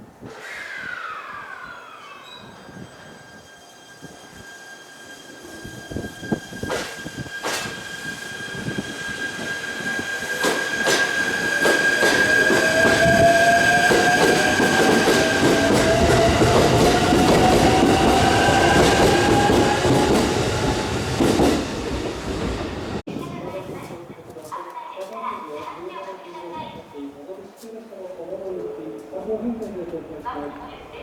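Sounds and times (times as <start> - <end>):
electric train approaching: 0.1 - 23.1
high-pitched wheel squeal: 0.3 - 21.7
motor whine rising in pitch: 0.5 - 10.4.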